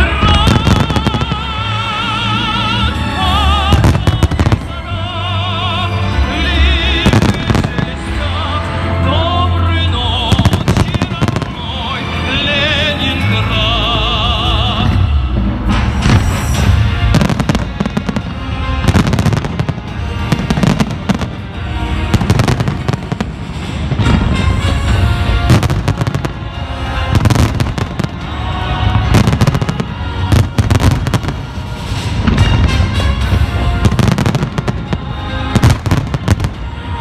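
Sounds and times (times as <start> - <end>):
fireworks bursting: 0.0 - 1.8, 3.4 - 4.7, 15.6 - 37.0
loud music: 0.0 - 37.0.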